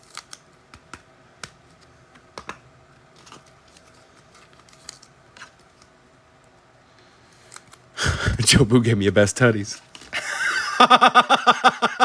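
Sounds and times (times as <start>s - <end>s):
trading cards being flicked: 0.0s - 5.9s.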